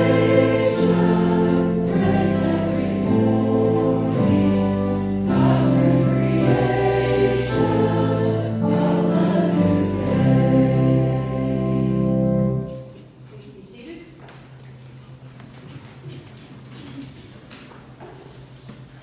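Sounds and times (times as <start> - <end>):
group singing a hymn: 0.0 - 12.8
sustained instrumental chords: 0.0 - 12.9.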